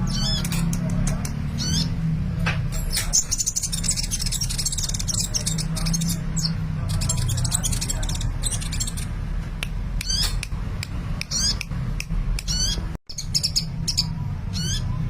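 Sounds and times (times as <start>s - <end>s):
sunbird singing high chirps: 2.9s - 9.1s.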